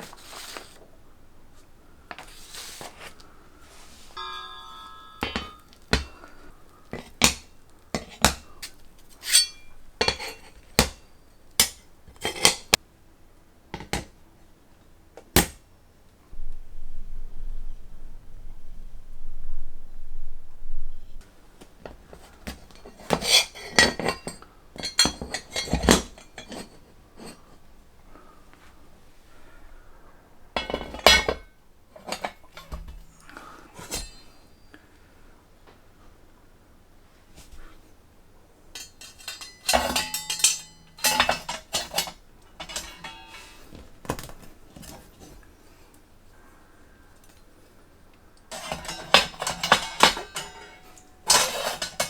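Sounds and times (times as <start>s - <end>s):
metallic ringing: 3.6s - 11.8s, 30.6s - 34.7s, 38.8s - 43.9s, 48.5s - 52.0s
metal parts clinking together: 4.1s - 12.8s, 22.6s - 27.4s, 30.6s - 33.2s, 33.8s - 34.3s, 38.8s - 45.3s, 48.5s - 52.0s.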